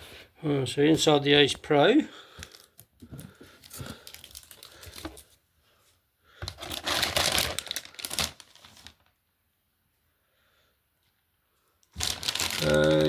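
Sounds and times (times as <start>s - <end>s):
plastic packaging crinkling: 2.4s - 5.2s, 6.5s - 9.1s, 11.9s - 13.0s.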